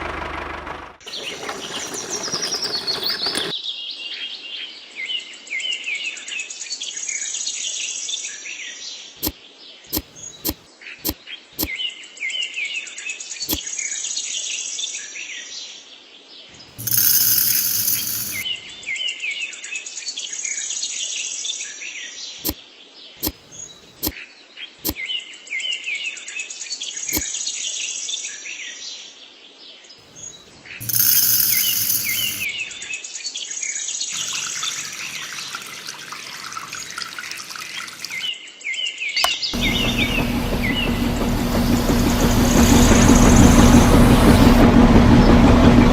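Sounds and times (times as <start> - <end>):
birds chirping: 1.1 - 3.5, 9.9 - 11.2, 39.2 - 44.4
sharp clicks: 9.9 - 11.2, 23.2 - 24.1
loud noisy bursts: 39.6 - 45.9.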